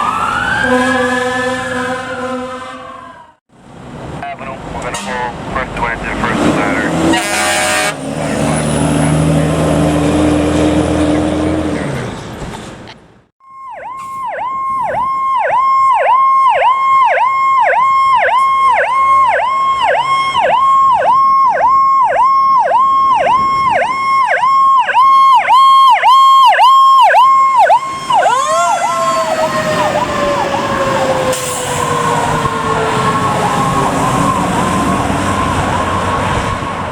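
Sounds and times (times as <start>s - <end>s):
fire truck air horn: 0.5s - 3.4s, 4.8s - 5.4s, 6.3s - 8.5s
electronic siren yelping: 13.4s - 36.9s
mechanical siren winding down: 13.4s - 36.9s.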